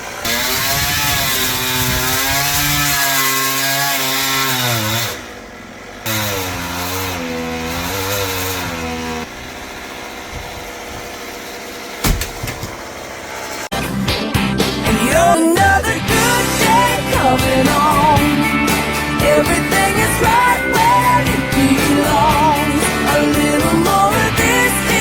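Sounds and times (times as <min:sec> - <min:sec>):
chainsaw cutting wood: 0:00.0 - 0:13.8, 0:15.1 - 0:25.0
sharp knock: 0:12.0 - 0:12.8.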